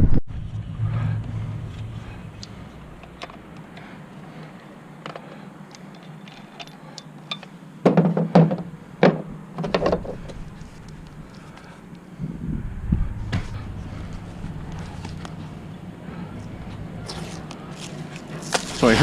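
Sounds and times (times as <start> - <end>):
knocks and thuds: 7.8 - 10.2.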